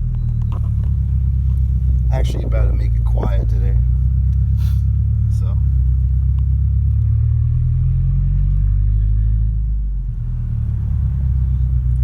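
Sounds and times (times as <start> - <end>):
engine rumbling through loud exhaust: 0.0 - 12.0.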